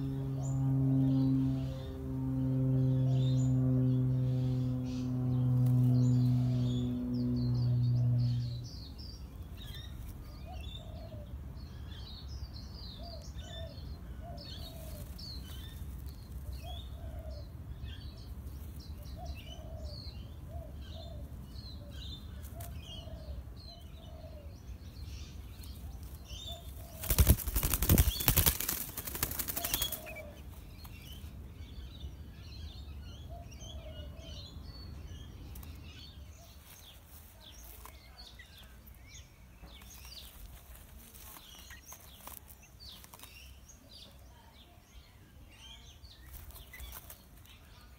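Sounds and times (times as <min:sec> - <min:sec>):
birds chirping: 0:00.0 - 0:47.9
bird wings flapping: 0:26.7 - 0:30.3.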